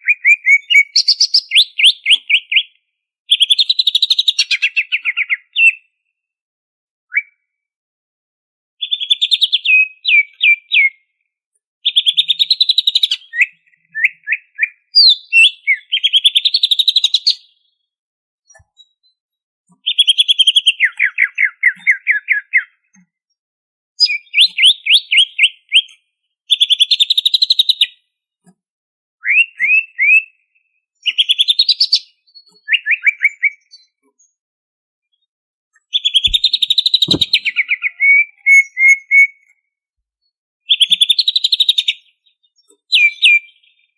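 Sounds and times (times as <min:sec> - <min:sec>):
bird singing whistled notes: 0:00.0 - 0:05.9, 0:07.1 - 0:07.5, 0:08.8 - 0:11.1, 0:11.9 - 0:17.6, 0:19.8 - 0:22.8, 0:24.0 - 0:28.0, 0:29.2 - 0:34.4, 0:35.9 - 0:39.5, 0:40.7 - 0:43.9
soft low thump: 0:37.1 - 0:37.4.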